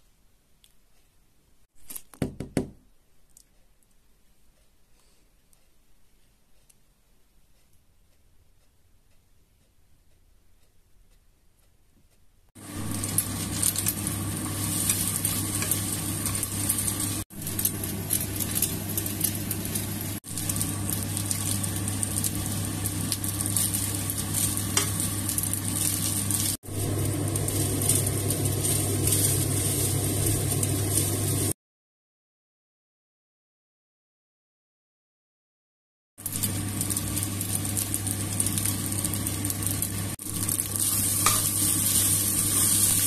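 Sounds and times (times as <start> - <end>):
steady low hum: 4.1 - 31.6
rice and egg sizzling in a pan: 12.6 - 31.6, 36.2 - 43.0
spatula scraping a pan: 40.8 - 43.0.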